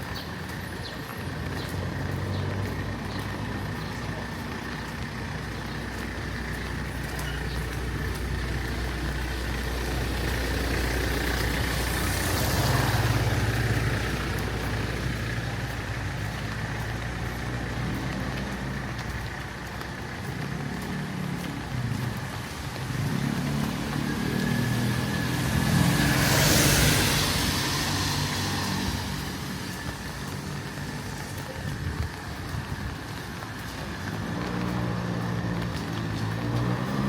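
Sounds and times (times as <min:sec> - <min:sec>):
vehicle passing: 0:00.0 - 0:37.0
vehicle engine idling: 0:00.4 - 0:37.0.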